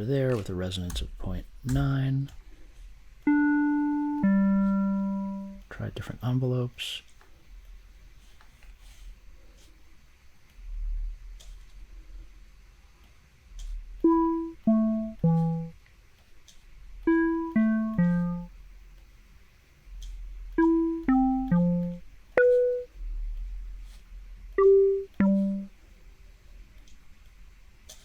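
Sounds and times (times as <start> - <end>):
synthesizer plucked notes: 3.2 - 5.6, 14.0 - 15.8, 17.0 - 18.5, 20.6 - 22.9, 24.6 - 25.7.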